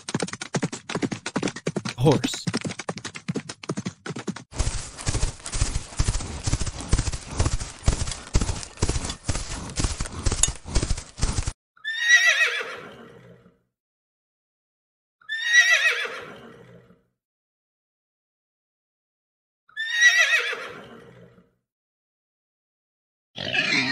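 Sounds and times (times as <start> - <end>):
hoofbeats of running horses: 0.0 - 11.6
horse neighing: 23.4 - 23.9.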